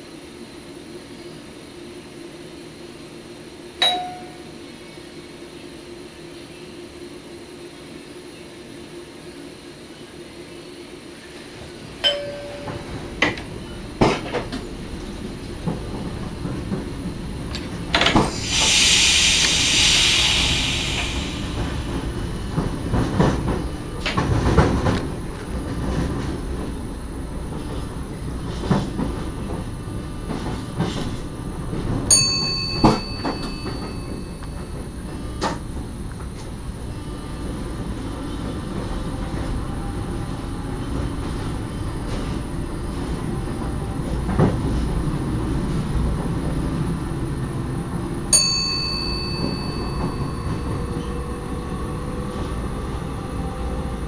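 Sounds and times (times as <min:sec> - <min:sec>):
train rumbling on track: 0:00.0 - 0:54.0
high ringing tones: 0:03.8 - 0:04.7, 0:12.0 - 0:13.3, 0:32.1 - 0:35.0, 0:48.4 - 0:51.6.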